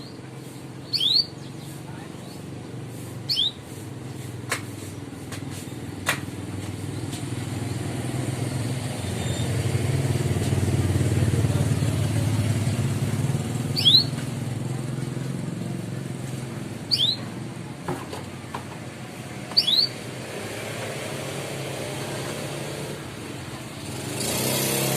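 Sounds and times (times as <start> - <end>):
canary chirp: 0.0 - 2.6, 3.2 - 4.3, 8.0 - 9.8, 13.6 - 14.2, 16.8 - 17.3, 19.4 - 20.3
passing vehicle engine rumble: 0.2 - 24.9.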